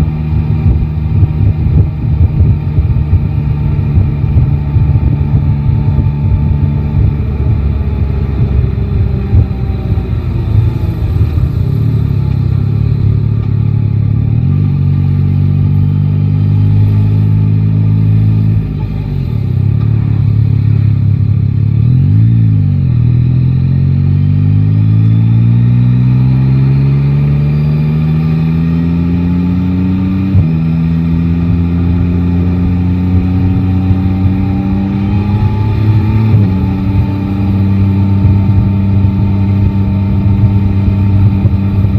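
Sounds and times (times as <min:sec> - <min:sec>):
motorcycle engine accelerating: 0:00.0 - 0:41.9
wind and road noise: 0:00.0 - 0:41.9.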